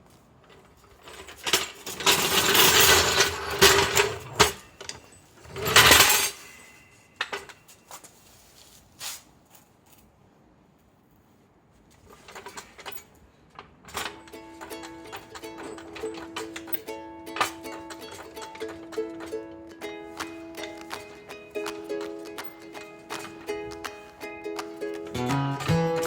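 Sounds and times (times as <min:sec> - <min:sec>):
metallic clinking and rattling: 0:00.5 - 0:07.7, 0:12.1 - 0:19.6, 0:20.2 - 0:24.2.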